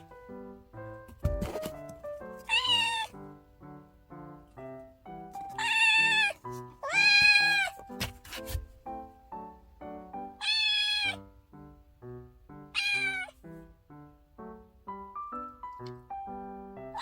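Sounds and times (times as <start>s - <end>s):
light background music: 0.0s - 17.0s
kitten meowing: 2.4s - 3.2s, 5.4s - 7.8s, 10.4s - 11.2s, 12.7s - 13.4s.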